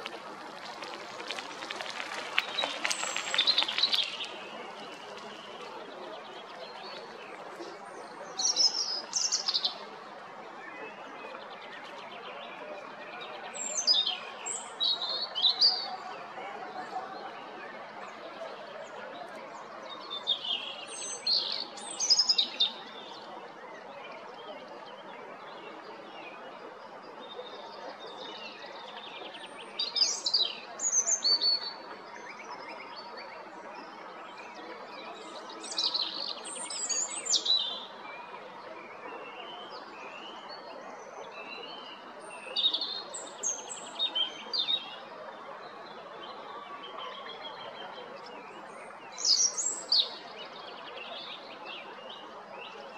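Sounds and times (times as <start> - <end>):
low background noise: 0.0 - 52.9
robin singing: 49.0 - 52.1.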